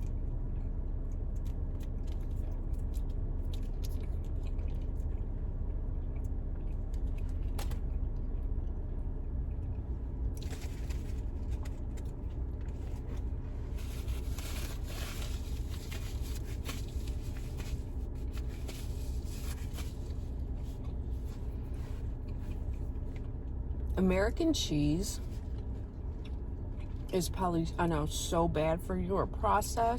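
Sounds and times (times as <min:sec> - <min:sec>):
food chewing and crunching: 0:00.0 - 0:24.0, 0:25.2 - 0:27.3
car interior hum: 0:00.0 - 0:29.9
food packaging rustling: 0:10.4 - 0:22.1.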